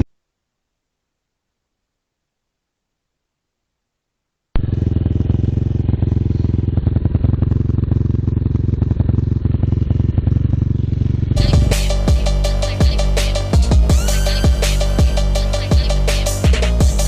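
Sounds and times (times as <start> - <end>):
vehicle engine running: 4.6 - 17.0
electronic music with beat: 11.4 - 17.0.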